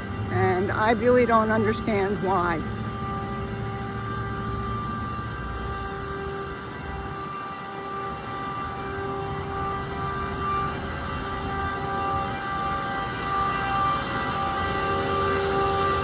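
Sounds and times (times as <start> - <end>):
chiller mechanical drone: 0.0 - 16.0
steady machine tones: 0.0 - 16.0.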